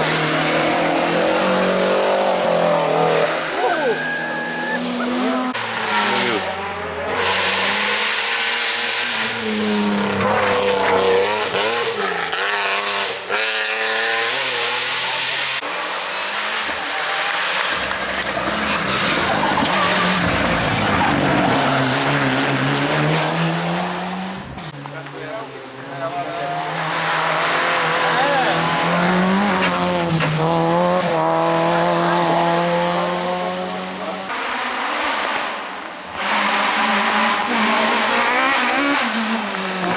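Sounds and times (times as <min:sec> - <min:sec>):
tyres squealing and skidding: 0:00.0 - 0:12.0, 0:16.5 - 0:22.6
rally car engines revving: 0:00.0 - 0:39.9.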